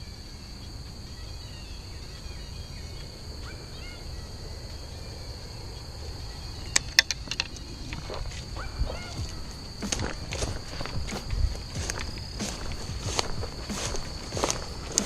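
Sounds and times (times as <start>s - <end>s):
bird chirps: 0.0s - 15.0s
high insect drone: 0.0s - 15.0s
sharp clicks: 9.2s - 15.0s.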